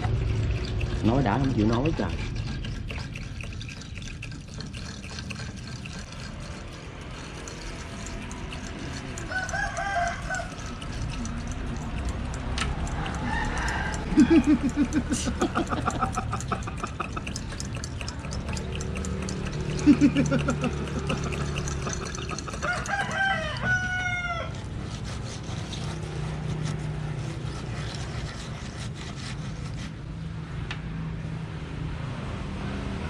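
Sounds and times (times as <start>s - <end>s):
rooster crowing: 9.2s - 10.8s, 12.8s - 14.9s, 22.4s - 24.7s.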